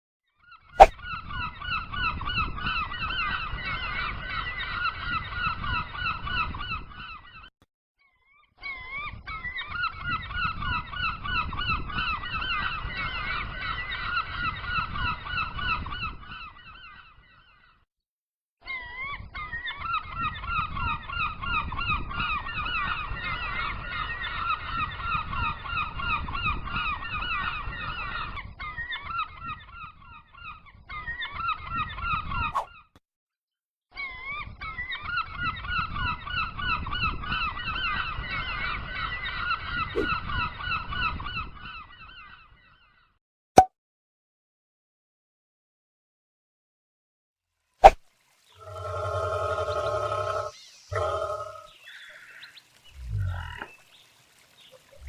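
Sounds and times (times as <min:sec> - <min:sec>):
birds calling in rapid notes: 0:48.5 - 0:55.0.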